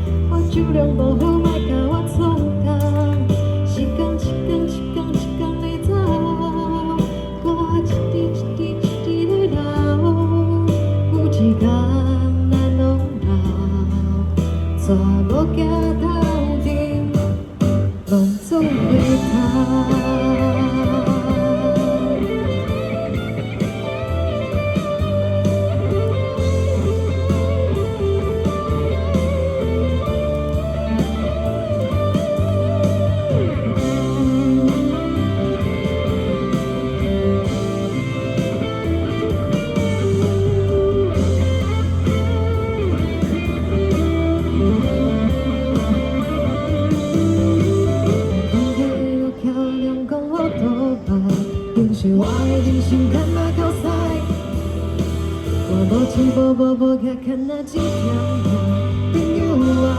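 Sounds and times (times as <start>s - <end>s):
bass line and beat: 0.0s - 48.9s, 51.6s - 56.5s, 57.8s - 59.9s
guitar melody bending notes: 0.0s - 56.6s, 57.8s - 59.9s.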